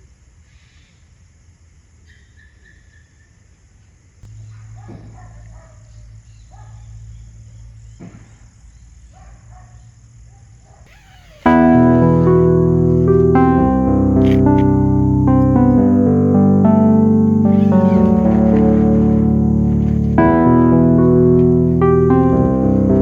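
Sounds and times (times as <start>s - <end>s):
faint insects: 0.0s - 22.8s
short falling animal calls: 10.9s - 12.6s, 17.5s - 20.6s.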